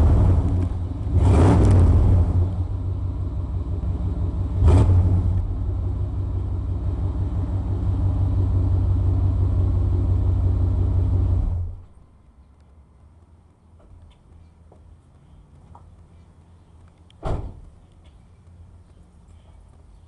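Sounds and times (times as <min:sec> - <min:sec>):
truck engine exhaust rumbling: 0:00.0 - 0:12.1.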